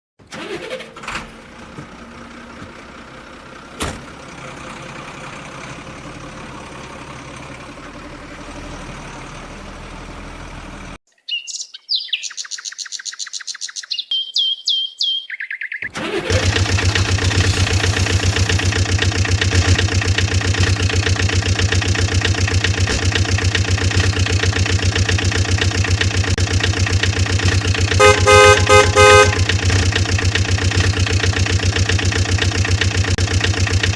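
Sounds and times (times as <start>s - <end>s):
vehicle engine running: 0.4s - 11.0s, 16.0s - 33.9s
chirping beeps: 11.3s - 15.9s
horn beeping: 27.4s - 30.9s.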